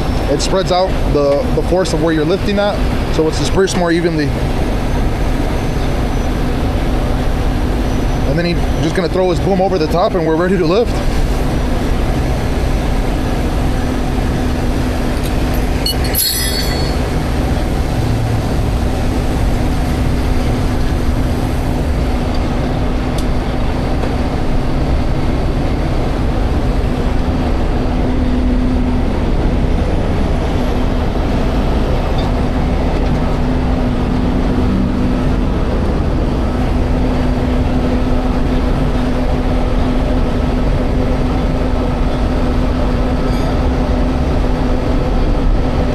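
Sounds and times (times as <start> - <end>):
diesel engine rumbling: 0.0 - 45.9
hydraulic whine: 11.7 - 24.6
metallic clatter: 15.2 - 17.3.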